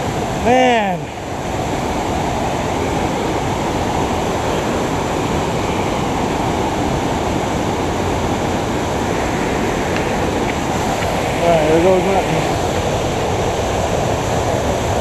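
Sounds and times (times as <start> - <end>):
waterfall rushing over rock: 0.0 - 15.0.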